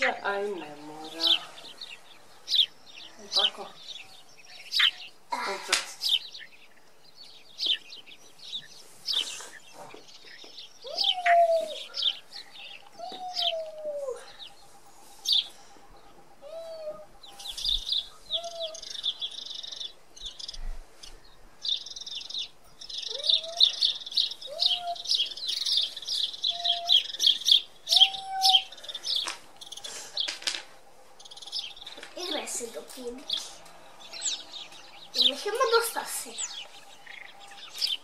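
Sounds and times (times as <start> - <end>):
small birds chirping: 0.0 - 38.0
whistled bird call notes: 21.7 - 30.0.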